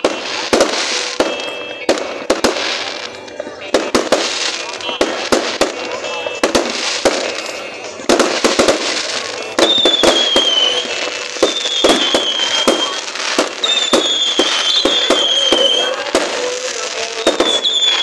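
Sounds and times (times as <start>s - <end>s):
fireworks bangs and cracks: 0.0s - 18.0s
high sliding firework whistles: 8.5s - 18.0s.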